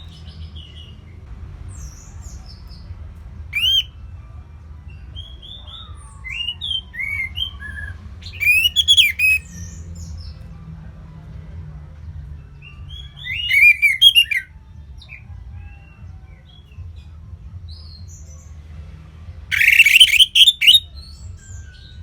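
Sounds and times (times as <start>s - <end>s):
faint bird calls: 3.6s - 3.9s, 19.5s - 20.8s
songbird warbling: 3.6s - 3.9s, 6.3s - 9.5s, 13.3s - 14.5s, 19.5s - 20.8s.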